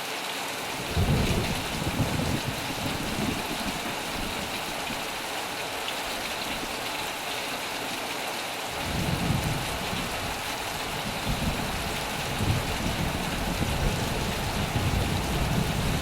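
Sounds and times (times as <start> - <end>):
heavy rain on a metal roof: 0.0 - 16.0
thunder rumbling: 0.8 - 5.1, 8.8 - 16.0.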